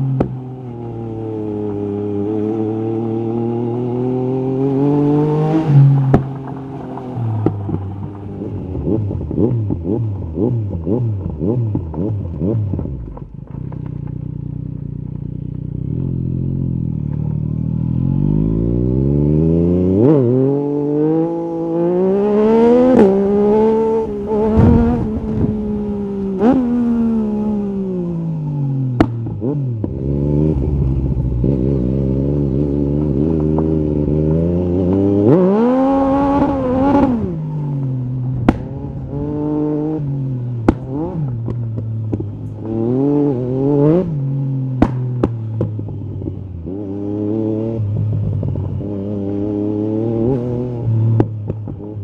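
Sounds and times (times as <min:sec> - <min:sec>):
motorcycle engine revving: 0:00.0 - 0:52.0
exhaust crack: 0:05.7 - 0:15.8, 0:24.1 - 0:27.6, 0:28.8 - 0:31.6, 0:36.0 - 0:42.8, 0:44.7 - 0:46.4.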